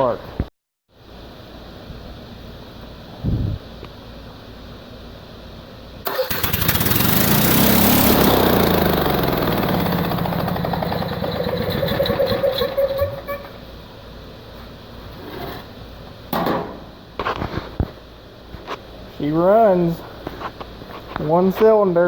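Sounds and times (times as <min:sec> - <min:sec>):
single-cylinder engine running: 0:06.1 - 0:13.6.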